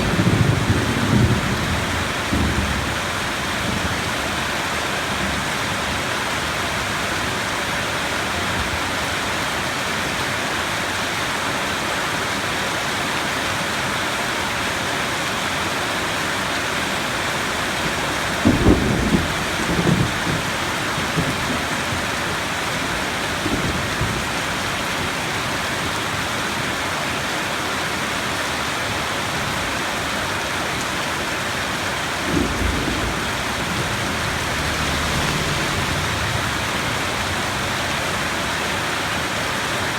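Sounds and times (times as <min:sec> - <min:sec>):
thunder rumbling: 0:00.0 - 0:04.4, 0:17.6 - 0:25.3, 0:31.9 - 0:39.9
heavy rain falling: 0:00.0 - 0:39.9.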